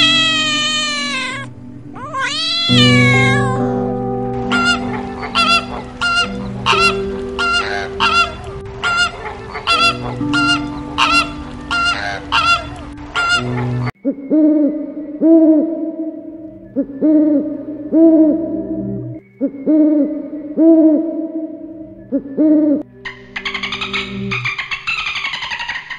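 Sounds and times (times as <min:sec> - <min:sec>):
owl calling: 0:00.0 - 0:03.7, 0:04.4 - 0:13.9, 0:23.1 - 0:25.9
flamingos honking: 0:00.0 - 0:14.0
low drone: 0:00.0 - 0:21.8.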